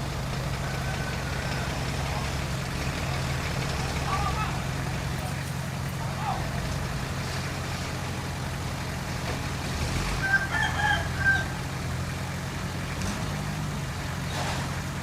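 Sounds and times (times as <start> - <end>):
bulldozer diesel engine running: 0.0 - 15.0
rooster crowing: 0.4 - 2.5, 10.2 - 11.7.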